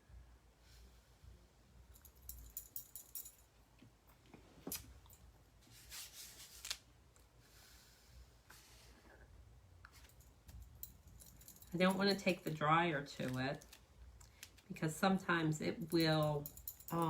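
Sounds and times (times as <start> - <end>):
small objects clicking and rustling: 10.0 - 14.7.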